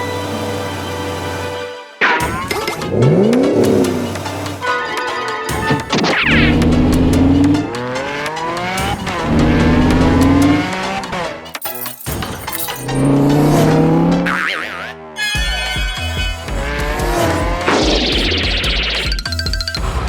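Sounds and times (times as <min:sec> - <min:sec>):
background music: 0:00.0 - 0:20.0
cartoon engine revving whine: 0:02.2 - 0:04.4, 0:05.5 - 0:11.2, 0:13.0 - 0:15.1, 0:16.4 - 0:19.1
wobbling high chirp: 0:17.8 - 0:19.8.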